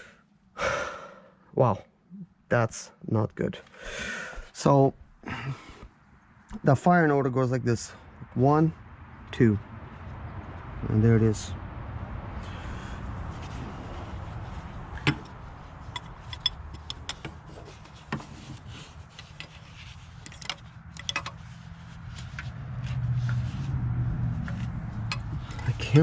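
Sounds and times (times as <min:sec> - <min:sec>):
metallic clicks of hand tools: 0:15.0 - 0:17.5, 0:20.2 - 0:21.4, 0:25.1 - 0:25.7.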